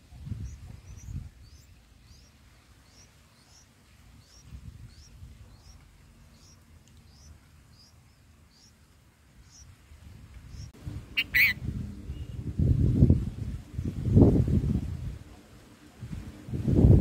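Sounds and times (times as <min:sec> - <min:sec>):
nestlings chirping: 0:00.3 - 0:08.8, 0:09.4 - 0:09.7, 0:10.4 - 0:11.6.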